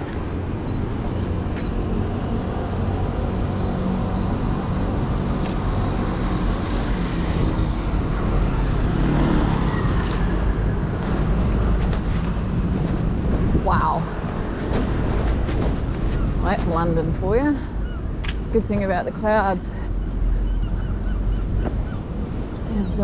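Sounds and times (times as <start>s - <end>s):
road traffic rumble: 0.0s - 23.0s
wind rumble on microphone: 0.0s - 23.0s.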